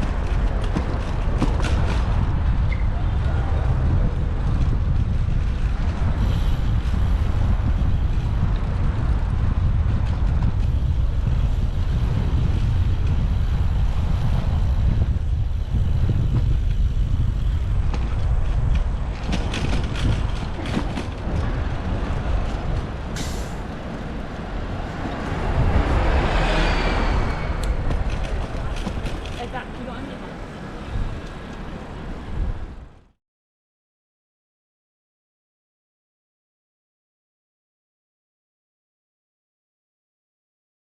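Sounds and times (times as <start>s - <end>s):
wind buffeting: 0.0s - 33.1s
road rumble: 0.0s - 33.2s
passing vehicle squeal: 26.0s - 27.9s.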